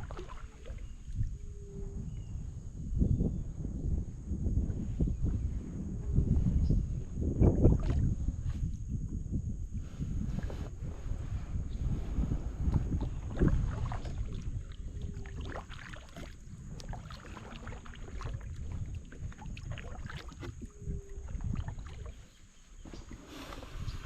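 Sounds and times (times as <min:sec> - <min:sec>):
paddle strokes splashing in water: 0:00.0 - 0:01.2, 0:12.6 - 0:24.0
wind rumbling on microphone: 0:00.0 - 0:24.0.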